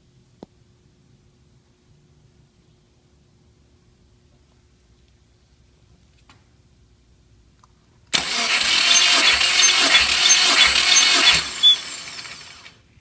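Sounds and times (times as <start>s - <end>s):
starter motor cranking engine: 8.1s - 12.8s.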